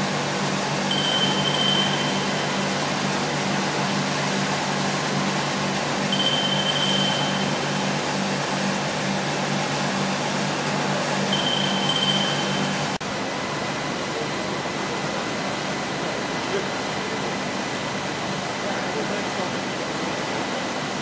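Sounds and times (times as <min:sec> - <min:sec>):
short high tone: 0:00.9 - 0:02.8, 0:06.1 - 0:07.9, 0:11.3 - 0:12.9.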